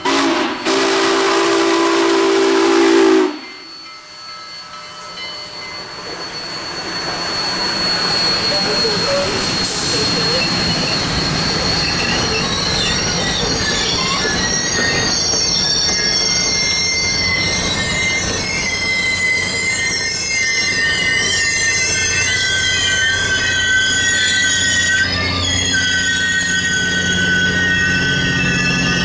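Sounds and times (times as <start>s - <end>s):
train wheels rumbling on rail: 0.0s - 29.0s
high wavering wheel squeals: 2.6s - 29.0s.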